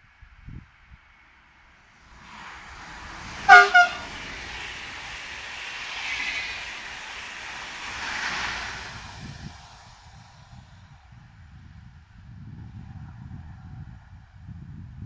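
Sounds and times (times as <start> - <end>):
train wheels on rails: 1.8 - 11.0
train horn toots: 3.5 - 4.2.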